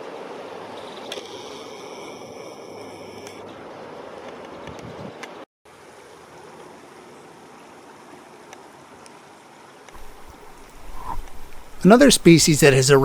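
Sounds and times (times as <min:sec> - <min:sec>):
steady outdoor background rush: 0:09.6 - 0:13.0.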